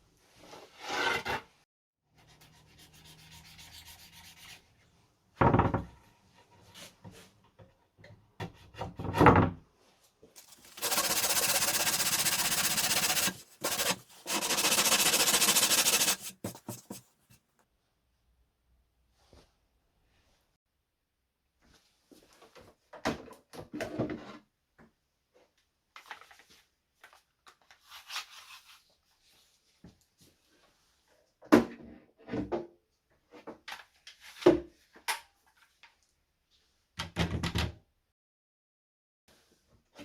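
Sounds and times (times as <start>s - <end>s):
scraping rub: 10.4s - 17.4s.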